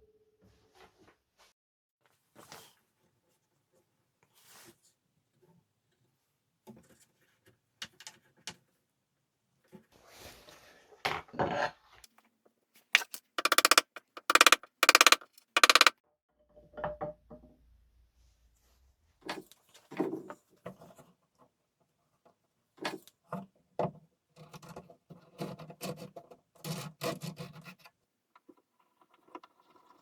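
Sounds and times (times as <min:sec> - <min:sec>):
light clicks and knocks: 0:13.0 - 0:15.9
rasping strokes on wood: 0:13.0 - 0:15.9.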